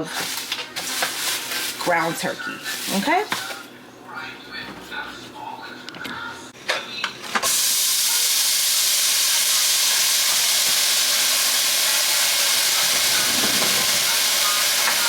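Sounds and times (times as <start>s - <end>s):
meat sizzling in a pan: 7.4s - 15.0s.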